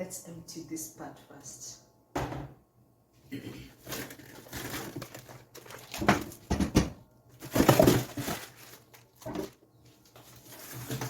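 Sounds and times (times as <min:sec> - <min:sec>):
plastic bags rustling and crinkling: 0:03.7 - 0:11.0
knocks from freezer packs: 0:03.9 - 0:09.6.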